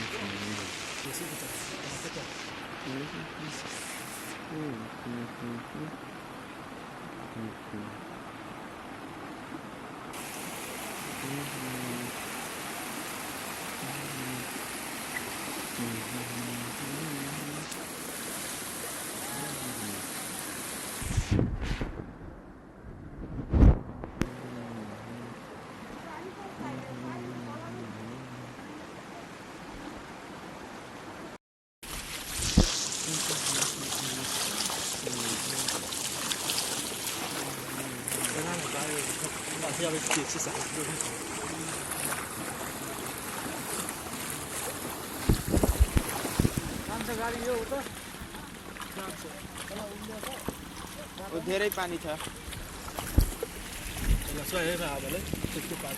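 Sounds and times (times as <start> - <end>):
faint voices: 0.0 - 6.0, 15.8 - 20.4, 24.3 - 29.5
floodwater rushing: 0.0 - 21.3, 23.6 - 55.9.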